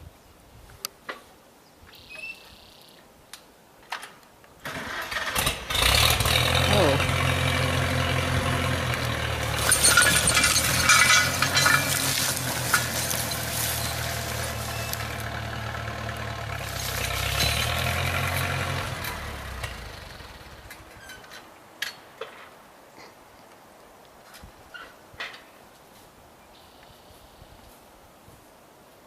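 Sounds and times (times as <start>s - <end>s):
tractor engine running: 4.6s - 21.0s
crackling and clinking: 8.6s - 19.2s.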